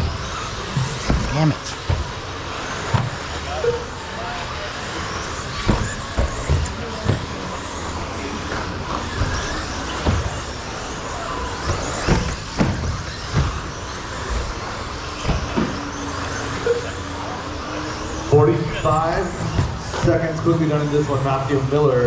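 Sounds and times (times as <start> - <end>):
sharp knocks: 0.0 - 3.3
motor whines: 0.0 - 22.0
rc truck motors whirring: 0.0 - 22.0.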